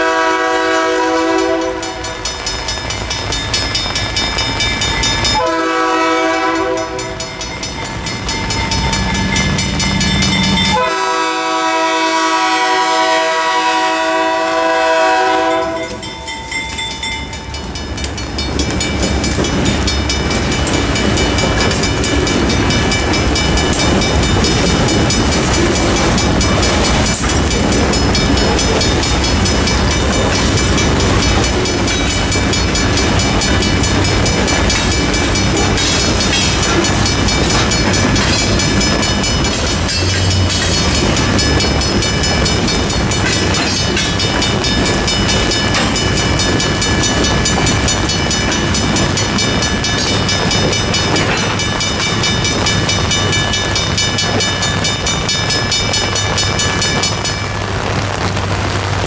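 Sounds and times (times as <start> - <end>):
train horn blasts: 0.0 - 2.2, 5.3 - 7.3, 10.7 - 16.1
level-crossing warning bell: 0.0 - 58.8
locomotives rumbling past: 0.0 - 59.0
freight cars wheel clatter: 16.2 - 57.5.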